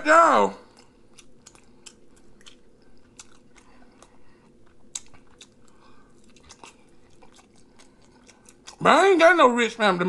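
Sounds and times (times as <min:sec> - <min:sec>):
person chewing food: 0:00.6 - 0:08.9.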